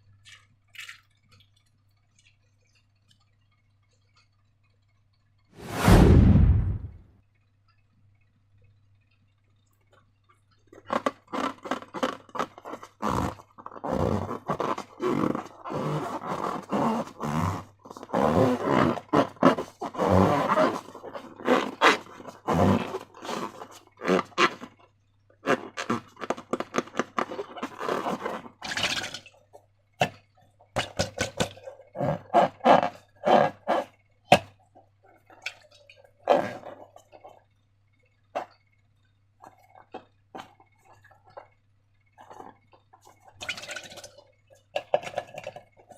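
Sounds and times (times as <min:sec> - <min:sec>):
rubber balloons rubbing and straining: 0:10.9 - 0:24.8, 0:25.4 - 0:28.6, 0:31.9 - 0:33.9, 0:36.3 - 0:36.9.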